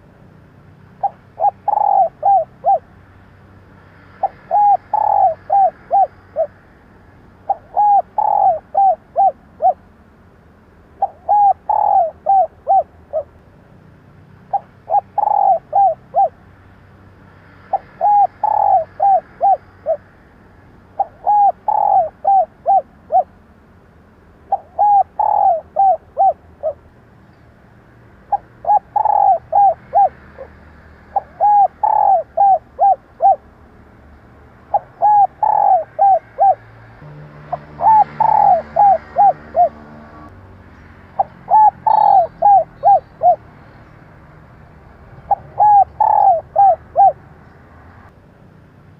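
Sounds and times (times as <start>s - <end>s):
dove cooing: 0.9s - 3.0s, 4.1s - 6.6s, 7.4s - 9.9s, 11.0s - 13.4s, 14.5s - 16.4s, 17.6s - 20.1s, 21.0s - 23.4s, 24.5s - 26.8s, 28.2s - 33.4s, 34.6s - 40.3s, 41.2s - 43.5s, 45.2s - 47.2s.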